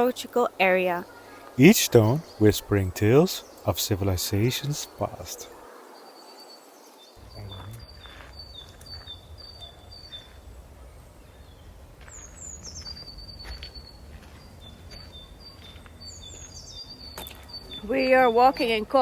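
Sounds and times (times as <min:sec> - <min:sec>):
songbird singing: 0:00.0 - 0:19.0
low outdoor rumble: 0:07.2 - 0:17.1.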